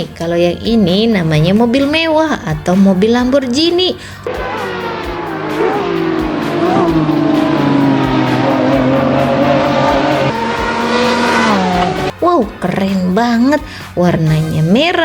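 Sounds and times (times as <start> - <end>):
sports car engine revving: 4.2 - 12.2.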